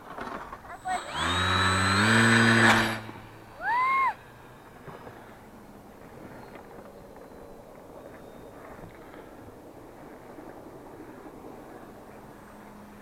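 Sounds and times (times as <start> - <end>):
model aircraft motor whine: 0.6 - 5.5.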